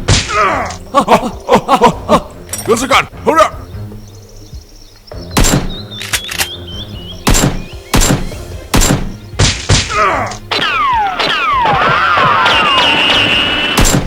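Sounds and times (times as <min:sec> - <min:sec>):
sharp thunks: 0:00.0 - 0:00.4, 0:05.2 - 0:05.9, 0:07.2 - 0:13.2
background music: 0:00.0 - 0:14.0.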